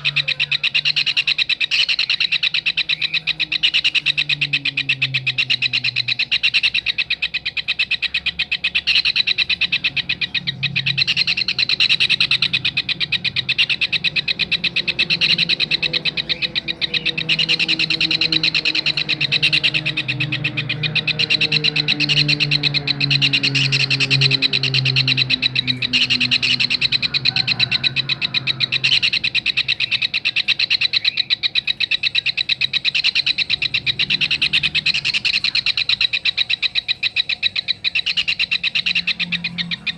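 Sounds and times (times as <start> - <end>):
kingfisher trilling: 0.0 - 39.9.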